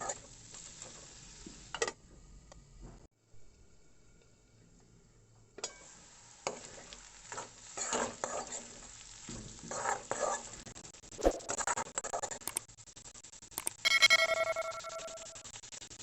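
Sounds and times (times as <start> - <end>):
potatoes sizzling in a pan: 0.0 - 1.9, 5.7 - 10.7
sharp click: 13.6 - 13.8.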